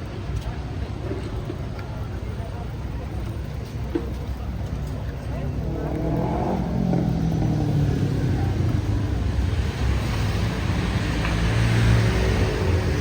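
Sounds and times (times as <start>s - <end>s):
vehicles passing: 5.0s - 13.0s.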